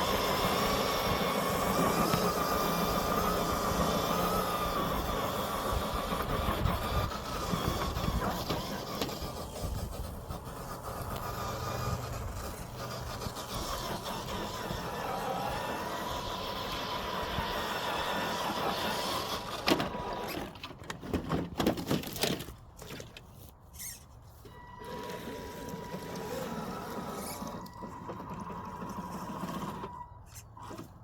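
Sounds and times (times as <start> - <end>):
toy car motor whining: 0.0 - 20.7, 23.7 - 31.0
thin high tone: 23.8 - 26.5.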